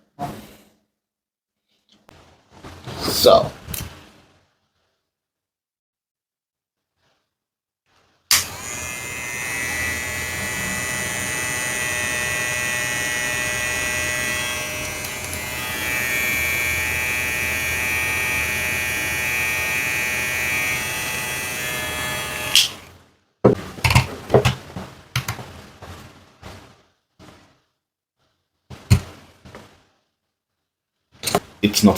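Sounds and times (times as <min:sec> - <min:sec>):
hair clipper buzzing: 0:08.3 - 0:22.9
hair clipper switch click: 0:08.3 - 0:22.9.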